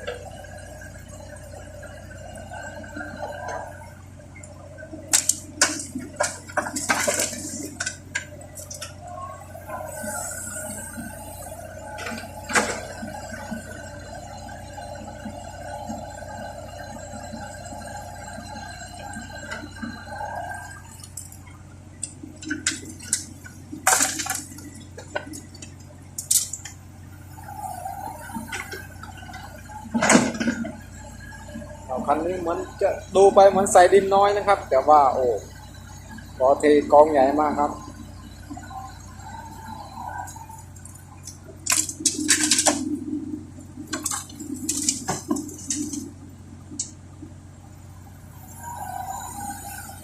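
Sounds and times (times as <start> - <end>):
steady low hum: 0.0 - 50.0
raindrops splattering on a vehicle: 41.2 - 42.8.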